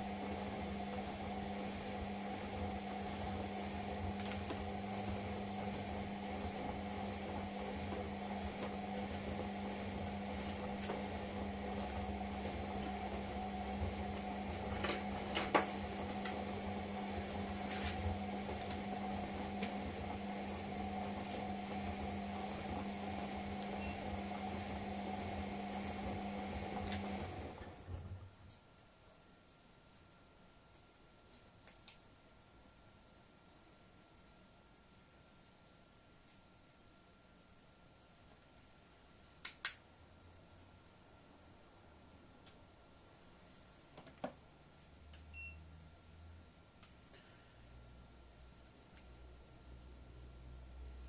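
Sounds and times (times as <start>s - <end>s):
washing machine humming: 0.0s - 28.3s.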